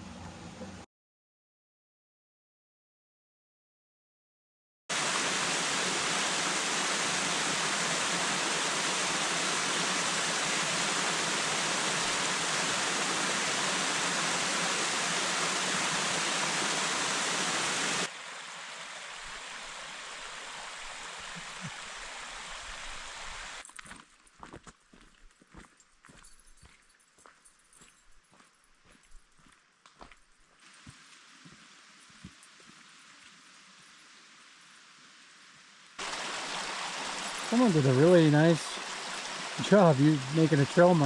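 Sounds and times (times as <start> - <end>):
waterfall rushing: 4.9 - 23.6, 36.0 - 41.0.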